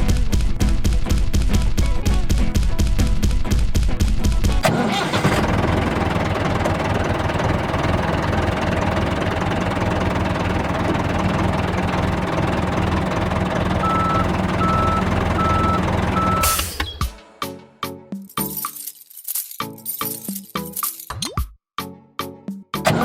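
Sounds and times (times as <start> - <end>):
vehicle engine running: 4.6 - 17.0
reversing alarm beeping: 13.8 - 17.0.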